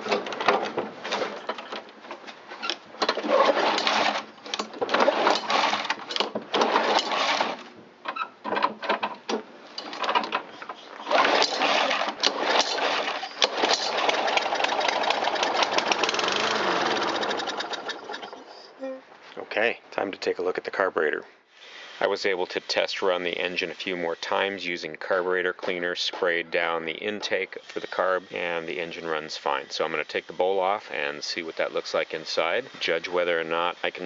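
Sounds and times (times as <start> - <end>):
lawn mower engine sputtering: 3.0 - 7.7, 11.0 - 18.5.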